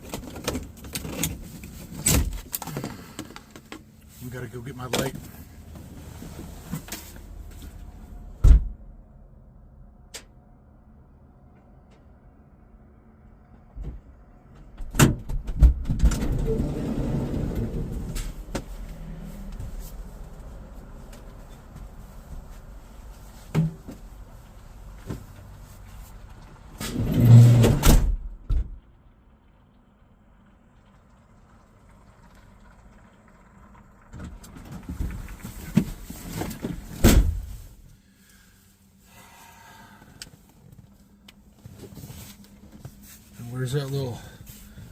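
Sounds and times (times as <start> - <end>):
rummaging inside a vehicle: 0.0 - 9.0, 13.4 - 28.7, 34.2 - 44.9
van door opening thump: 8.4 - 8.8, 37.0 - 37.5.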